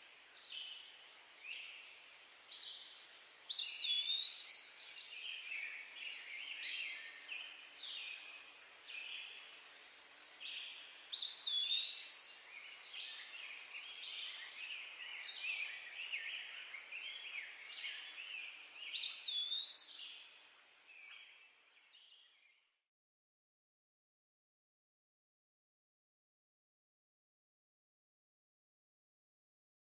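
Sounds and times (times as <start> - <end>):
songbirds chirping and trilling: 0.0 - 22.8.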